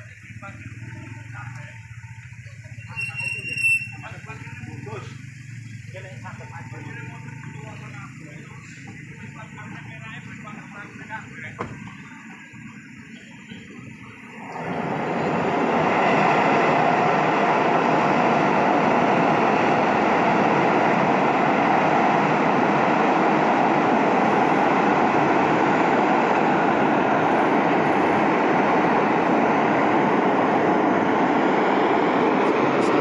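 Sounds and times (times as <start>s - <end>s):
train wheels rushing on bridge rails: 14.4s - 33.0s.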